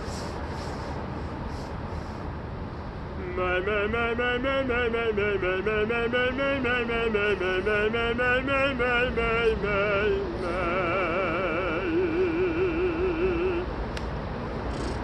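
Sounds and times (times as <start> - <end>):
person singing vocal exercise: 3.2 - 13.8.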